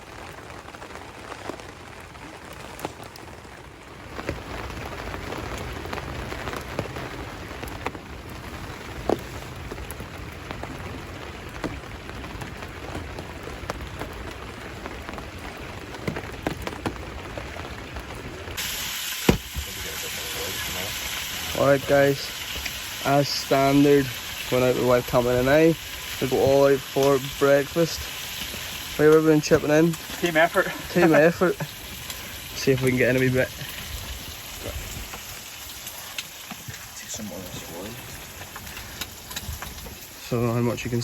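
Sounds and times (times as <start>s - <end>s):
light rain pattering: 0.0s - 41.0s.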